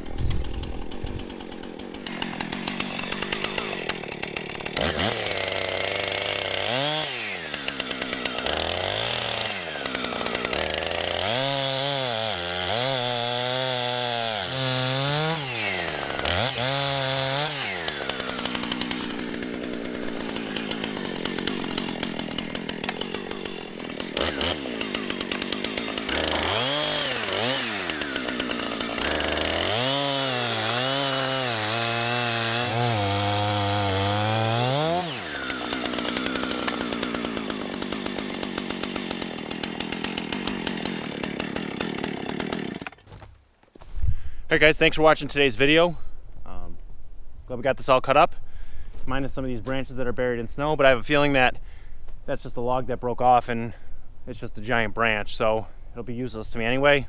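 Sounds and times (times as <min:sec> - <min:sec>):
chainsaw engine revving: 0:00.0 - 0:43.1.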